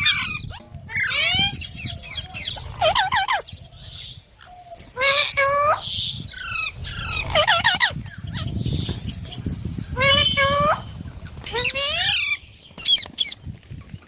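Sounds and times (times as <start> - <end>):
parrot squawking: 0.0 - 3.4, 5.0 - 8.5, 9.9 - 13.3.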